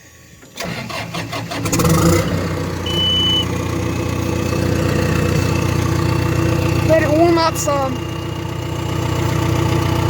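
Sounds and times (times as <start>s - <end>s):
diesel engine idling: 0.0s - 10.0s
short high-pitched tone: 2.9s - 3.5s.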